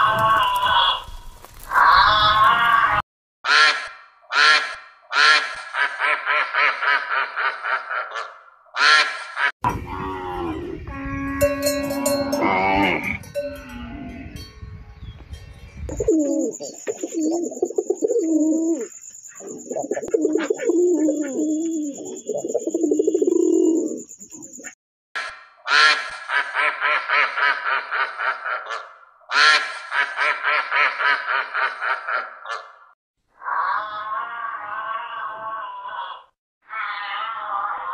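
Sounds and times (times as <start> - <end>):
duck quacking: 3.5 - 9.5, 25.7 - 32.8
pigeons cooing: 15.9 - 24.8.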